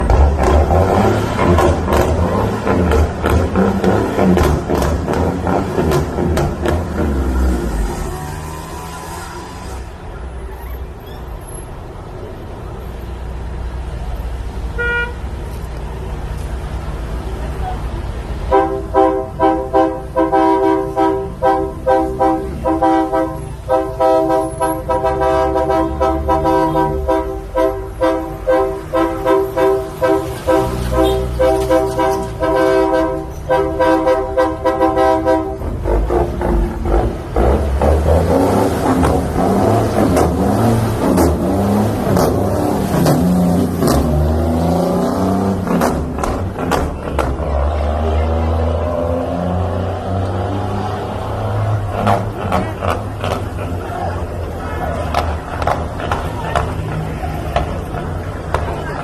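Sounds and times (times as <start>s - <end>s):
low engine rumble: 0.0s - 59.0s
truck horn blasts: 14.7s - 15.3s, 18.5s - 37.6s.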